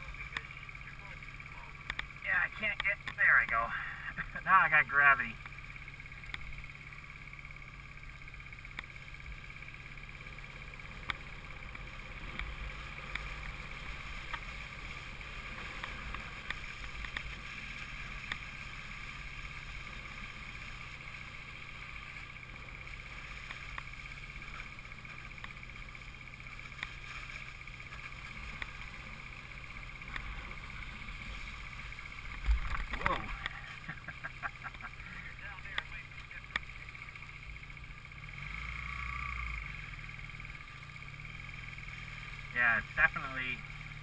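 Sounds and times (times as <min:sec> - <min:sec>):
motorcycle engine running: 0:00.0 - 0:44.0
faint ticks: 0:01.8 - 0:03.2, 0:05.4 - 0:06.7, 0:08.6 - 0:09.0, 0:10.9 - 0:19.3, 0:19.9 - 0:35.0, 0:35.7 - 0:42.3.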